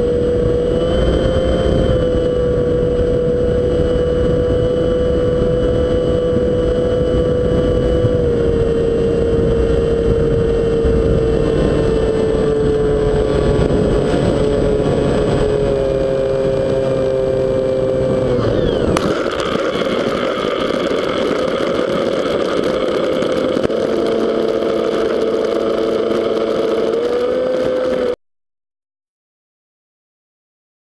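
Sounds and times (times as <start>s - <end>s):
model plane motor whine: 0.0s - 28.2s
strong wind rumble: 0.0s - 28.2s.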